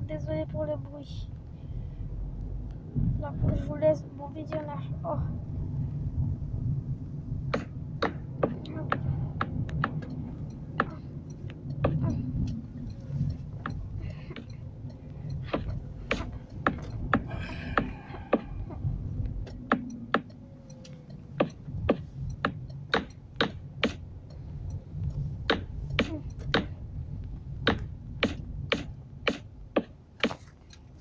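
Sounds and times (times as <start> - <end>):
steady low rumble: 0.0 - 31.0
sharp irregular clicks and knocks: 7.5 - 31.0.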